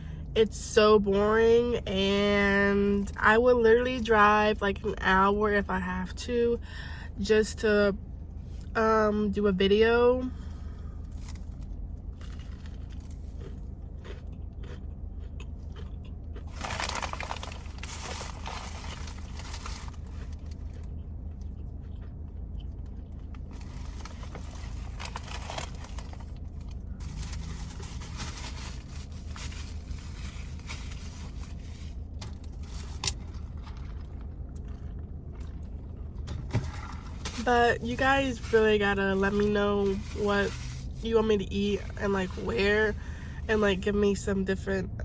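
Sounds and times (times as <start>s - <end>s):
steady low hum: 0.0s - 45.0s
crunching and chewing food: 10.3s - 41.1s
scraping and rustling: 16.5s - 20.7s, 23.5s - 34.0s, 36.4s - 41.1s.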